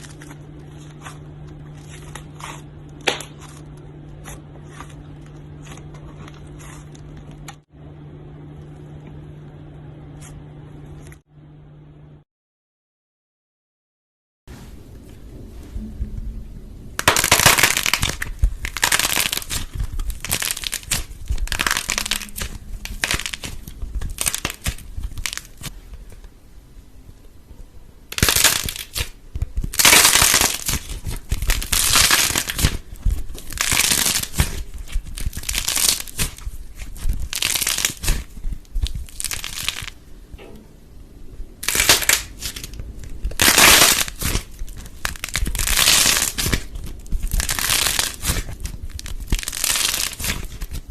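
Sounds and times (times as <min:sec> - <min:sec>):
crackling crunching bursts: 0:17.0 - 0:26.2, 0:28.1 - 0:40.2, 0:41.6 - 0:50.9.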